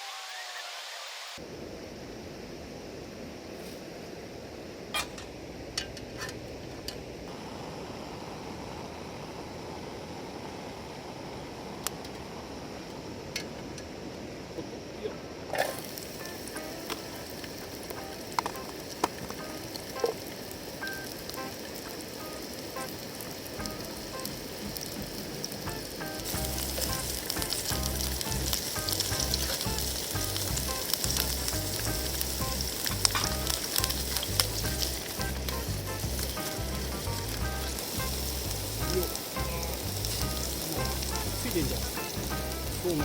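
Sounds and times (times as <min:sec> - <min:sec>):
noodles sizzling in a pan: 0:15.5 - 0:43.0.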